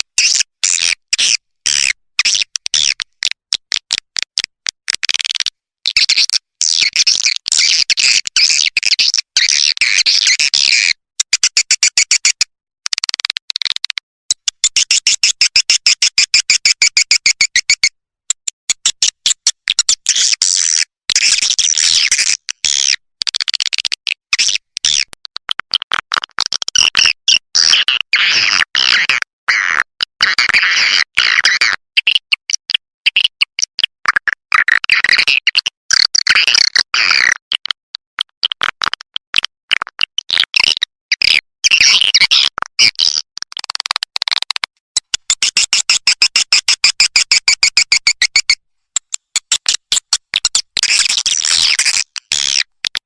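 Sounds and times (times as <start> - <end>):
fast run of clicks: 11.2 - 15.5, 43.0 - 53.0.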